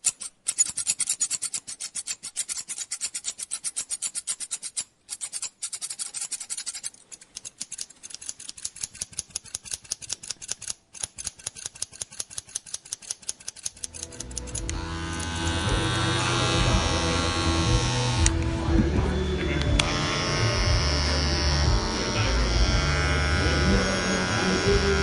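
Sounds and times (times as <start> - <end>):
scissors snipping rapidly: 0.0 - 15.6
electric hair clippers buzzing: 13.8 - 25.0.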